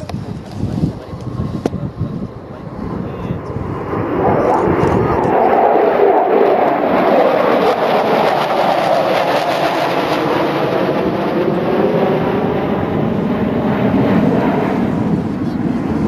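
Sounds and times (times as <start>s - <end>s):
fighter jets roaring overhead: 0.0s - 16.0s.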